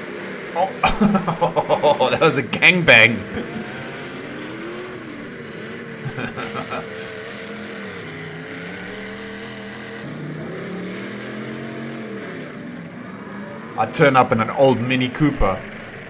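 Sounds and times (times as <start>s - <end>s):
car engines revving: 0.0s - 16.0s
background din: 0.6s - 3.7s.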